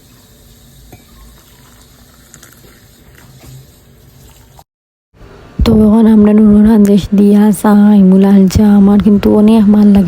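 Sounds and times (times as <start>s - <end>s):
tea boiling in a pot: 0.0s - 4.6s.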